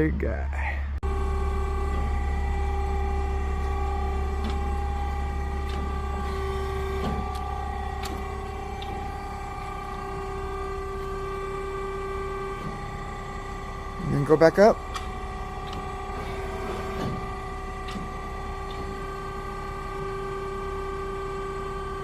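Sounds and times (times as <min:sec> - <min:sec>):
hydraulic pump whine: 0:00.0 - 0:22.0
low motor hum: 0:00.0 - 0:22.0.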